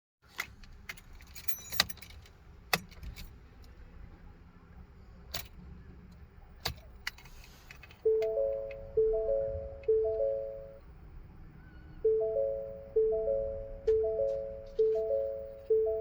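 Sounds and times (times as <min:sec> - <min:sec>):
car keys jangling: 0:00.6 - 0:03.3.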